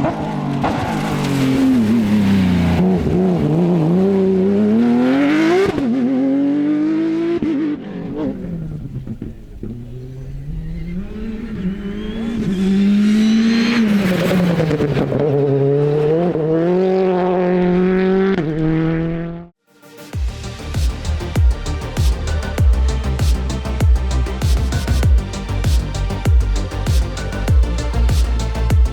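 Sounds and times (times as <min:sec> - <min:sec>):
rally car engine revving: 0:00.0 - 0:19.5
music with a beat: 0:19.9 - 0:28.9.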